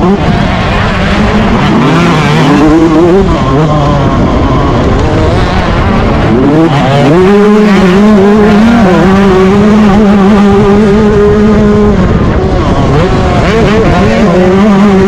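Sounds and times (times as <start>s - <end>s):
motocross engine revving hard: 0.0s - 15.0s.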